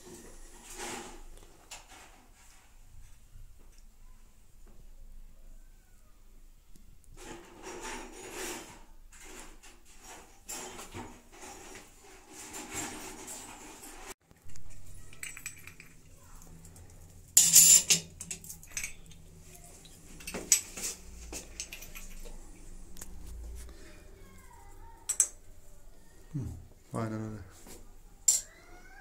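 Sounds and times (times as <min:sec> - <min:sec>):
metal tools clinking and knocking: 0:14.6 - 0:16.2, 0:17.3 - 0:19.2, 0:25.0 - 0:25.4, 0:28.2 - 0:28.6.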